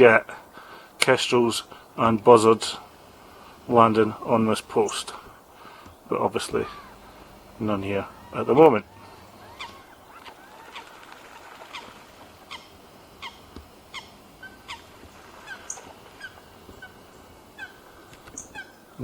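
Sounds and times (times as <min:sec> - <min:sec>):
faint steady background noise: 0:00.0 - 0:19.0
waterbirds calling: 0:00.0 - 0:19.0.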